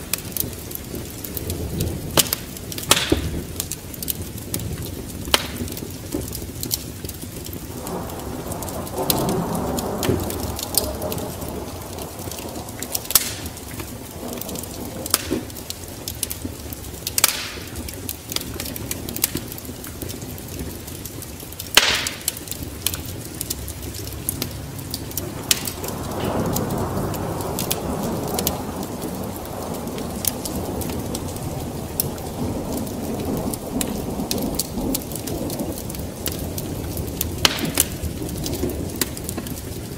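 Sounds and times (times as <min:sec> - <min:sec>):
rain: 0:00.0 - 0:39.9
wood fire crackling and popping: 0:00.0 - 0:39.9
deep rushing rumble: 0:22.7 - 0:34.8.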